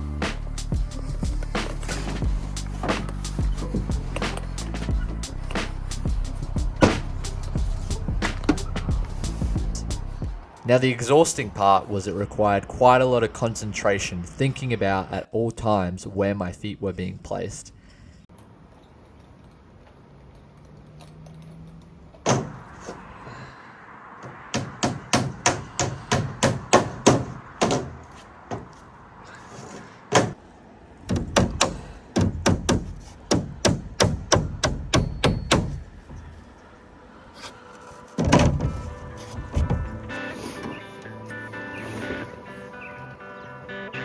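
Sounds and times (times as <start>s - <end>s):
hammer knocking: 24.5s - 28.0s, 31.1s - 35.9s.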